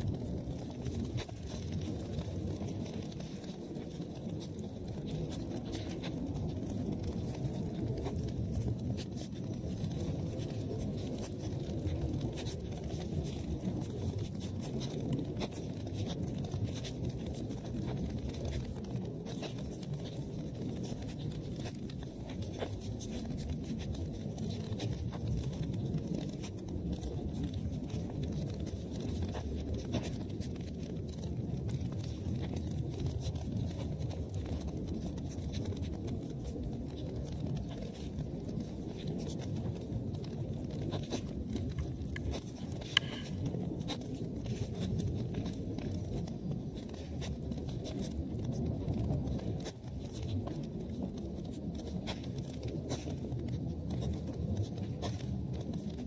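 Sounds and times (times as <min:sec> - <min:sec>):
fire crackling and popping: 0:00.0 - 0:56.0
fire flames rumbling: 0:00.0 - 0:56.0.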